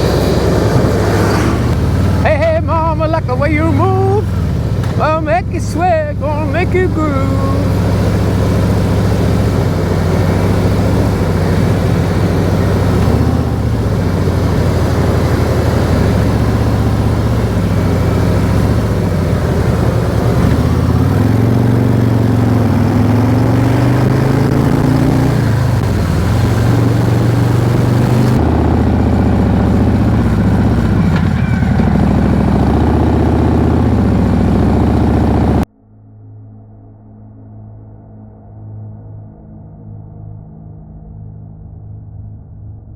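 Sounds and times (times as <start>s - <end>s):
motorcycle engine revving: 0.0s - 35.7s
road and wind noise: 0.0s - 35.7s.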